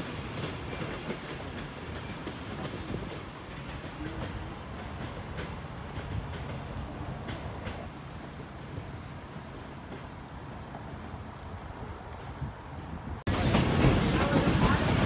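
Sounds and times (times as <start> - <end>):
train cars rolling on track: 0.0 - 15.0
wheels clicking over rail joints: 0.0 - 15.0.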